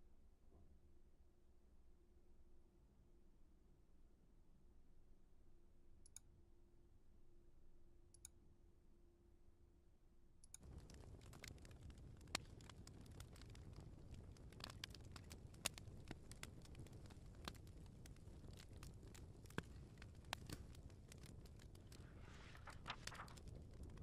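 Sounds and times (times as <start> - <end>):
wood fire crackling: 10.6 - 24.0
low hiss: 21.8 - 23.4.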